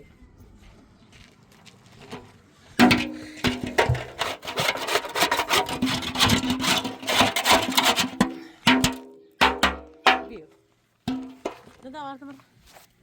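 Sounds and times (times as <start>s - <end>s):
rapid scraping and knocking: 2.1s - 10.4s, 11.1s - 11.9s.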